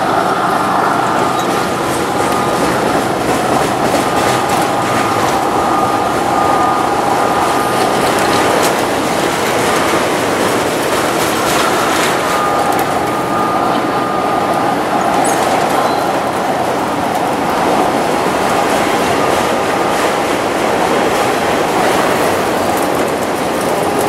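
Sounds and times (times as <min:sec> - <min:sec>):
train wheels rumbling on rails: 0:00.0 - 0:24.0
wheels squealing on curve: 0:00.7 - 0:10.0
clicks at rail joints: 0:21.0 - 0:24.0.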